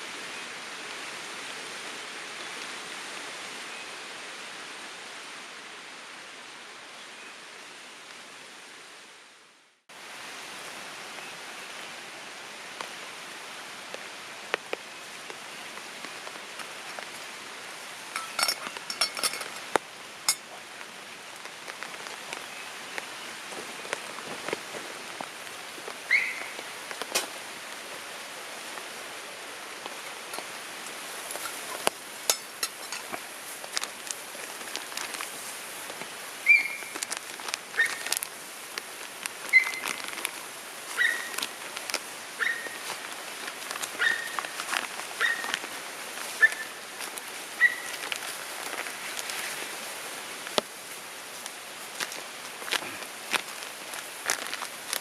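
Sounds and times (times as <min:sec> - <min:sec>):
steady rain falling: 0:00.0 - 0:55.0
sharp clinks and ticks: 0:18.2 - 0:19.7.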